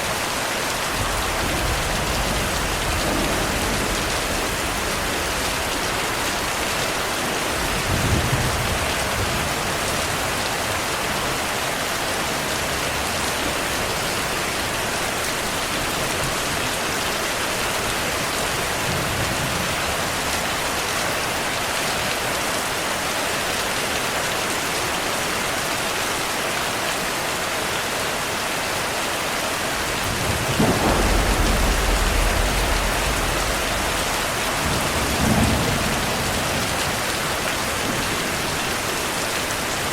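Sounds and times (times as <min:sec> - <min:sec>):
heavy rain falling: 0:00.0 - 0:39.9
thunder rumbling: 0:00.8 - 0:10.3, 0:29.7 - 0:38.8.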